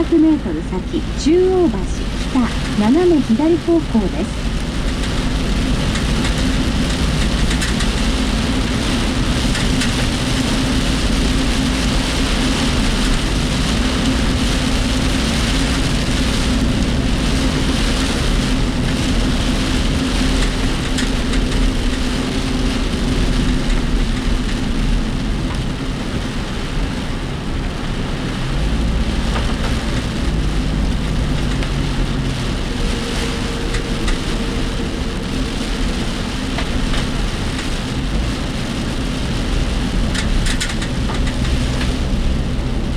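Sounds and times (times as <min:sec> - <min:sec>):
engine and road noise: 0:00.0 - 0:42.9
rain on vehicle body: 0:00.0 - 0:42.9
vehicle body rattling: 0:04.7 - 0:11.7.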